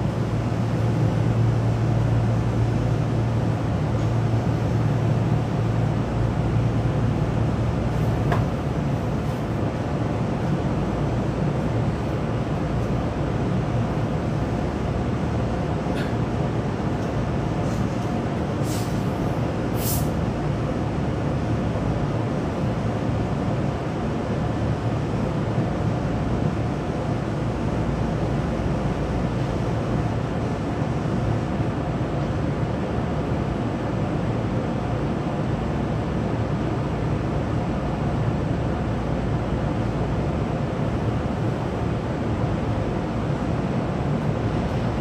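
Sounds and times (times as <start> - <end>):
train car rumble and hum: 0.0 - 45.0.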